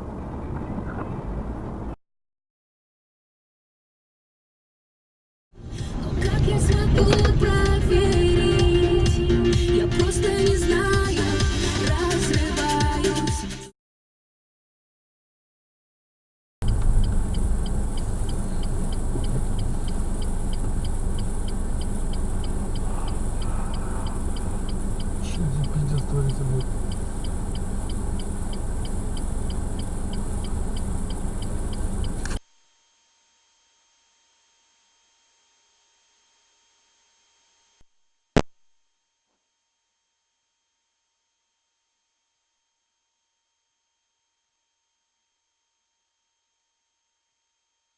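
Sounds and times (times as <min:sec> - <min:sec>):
car engine and road rumble: 0:00.0 - 0:02.0, 0:05.6 - 0:13.6, 0:16.6 - 0:32.4.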